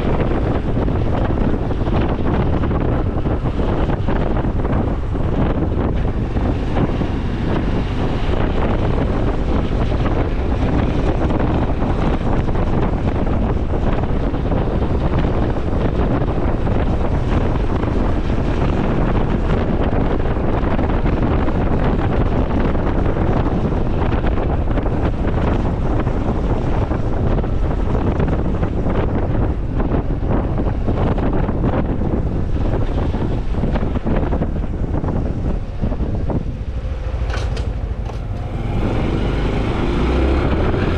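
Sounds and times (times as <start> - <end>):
wind rushing over microphone: 0.0 - 40.9
motorcycle engine running: 33.7 - 40.9.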